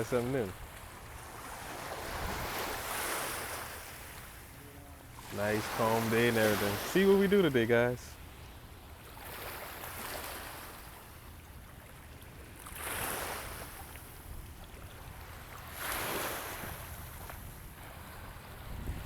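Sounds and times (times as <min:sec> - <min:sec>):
river water washing up: 0:00.0 - 0:08.4, 0:12.0 - 0:19.0
wind rumble on microphone: 0:02.0 - 0:02.9, 0:16.6 - 0:19.0.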